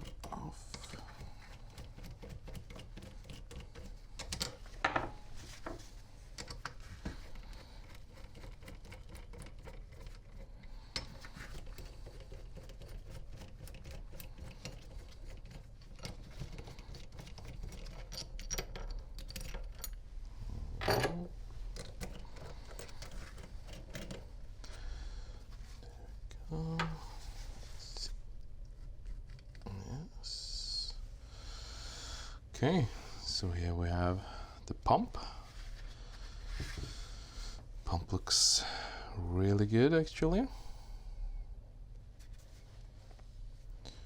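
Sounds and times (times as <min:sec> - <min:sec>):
metal parts and tools rattling: 0:00.0 - 0:20.0, 0:20.8 - 0:24.6.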